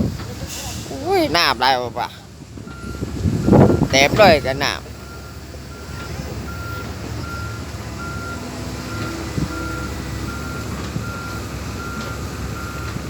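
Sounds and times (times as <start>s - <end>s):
diesel engine running: 0.0s - 13.0s
excavator travel alarm beeping: 2.7s - 13.0s.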